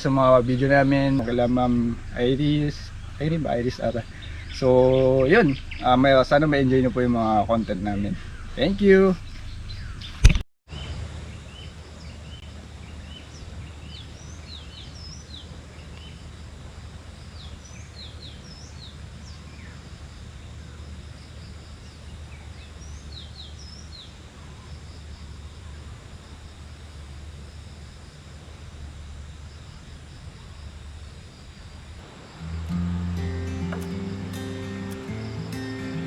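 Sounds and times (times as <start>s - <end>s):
low outdoor rumble: 0.0s - 10.2s
birds chirping: 0.0s - 16.2s, 32.0s - 36.0s.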